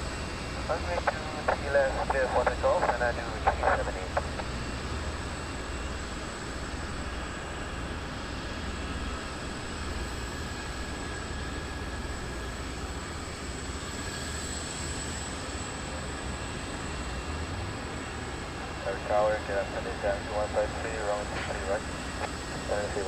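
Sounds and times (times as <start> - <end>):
jet engines running: 0.0 - 23.0
faint high whine: 0.5 - 7.2, 18.0 - 23.0.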